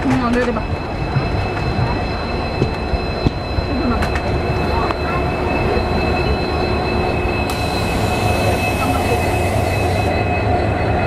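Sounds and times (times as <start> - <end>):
train rumbling on rails: 0.0 - 11.0
bright hiss: 7.5 - 10.1.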